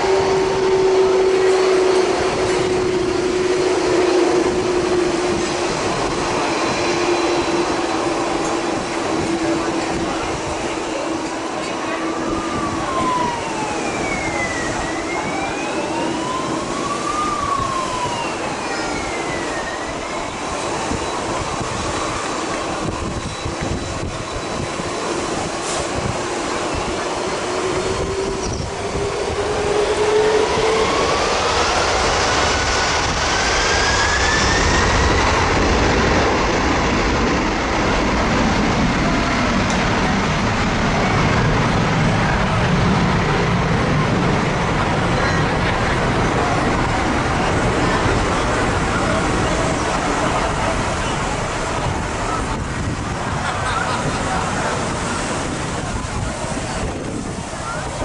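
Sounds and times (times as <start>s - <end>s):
wavering whistle tones: 0.0s - 5.2s, 6.2s - 8.2s, 11.9s - 24.7s, 26.6s - 32.4s
jet engine turbine whine: 0.0s - 58.0s.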